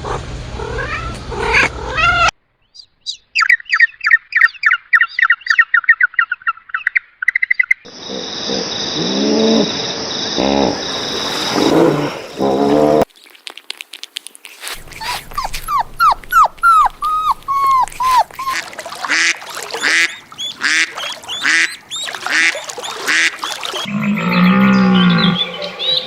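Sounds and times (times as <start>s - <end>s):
ducks whistling calls: 14.7s - 26.0s
ducks quacking: 16.6s - 26.0s.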